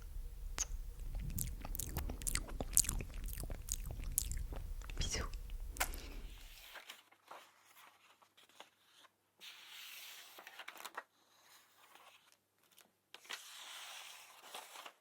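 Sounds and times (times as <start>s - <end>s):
soft wet mouth clicks: 0.0s - 6.4s
breathy hiss: 0.0s - 6.6s.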